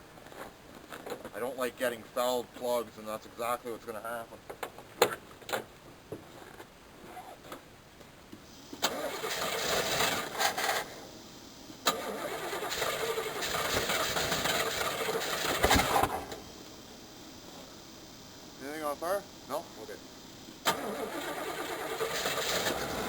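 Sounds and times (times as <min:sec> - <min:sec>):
starter cranking engine: 0:08.8 - 0:11.0, 0:11.9 - 0:16.0, 0:20.6 - 0:23.0
engine backfire pop: 0:13.5 - 0:16.4.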